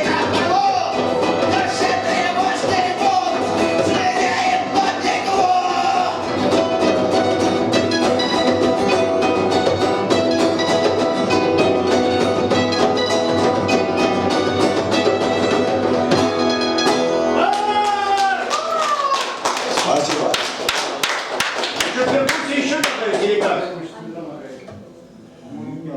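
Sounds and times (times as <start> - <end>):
drums: 0.0 - 17.9
electric guitar: 0.0 - 17.9.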